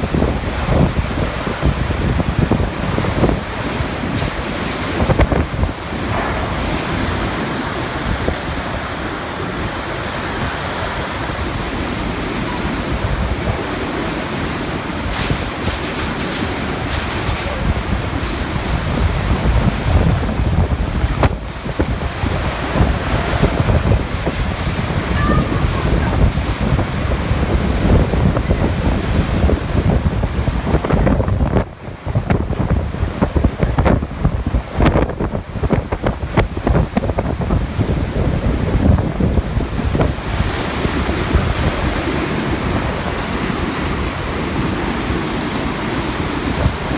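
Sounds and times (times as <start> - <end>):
wind gusting on microphone: 0.0 - 46.9.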